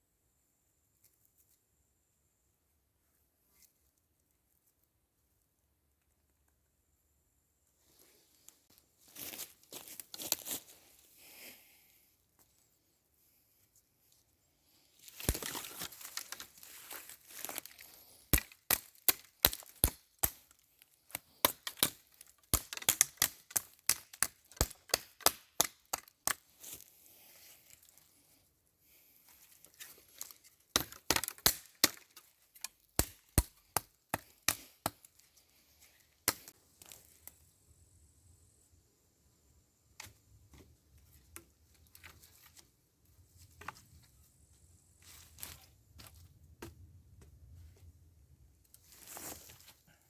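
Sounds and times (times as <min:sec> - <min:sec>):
twigs rustling and crackling: 0:08.3 - 0:11.0, 0:15.0 - 0:28.4, 0:29.2 - 0:37.5
knife chopping wood: 0:18.4 - 0:20.5, 0:22.6 - 0:26.4, 0:30.8 - 0:32.2, 0:33.0 - 0:35.1.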